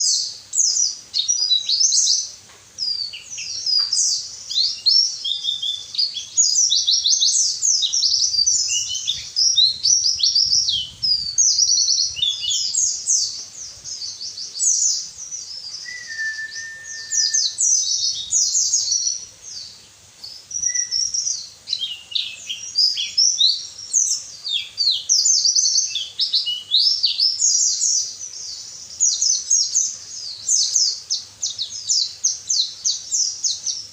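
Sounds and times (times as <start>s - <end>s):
bird twittering chirps and trills: 0.0s - 33.9s
short lower whistle: 15.8s - 17.6s.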